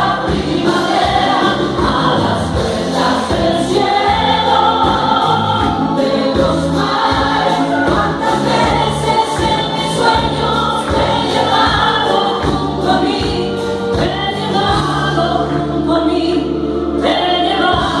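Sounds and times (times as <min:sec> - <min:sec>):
live band playing: 0:00.0 - 0:18.0.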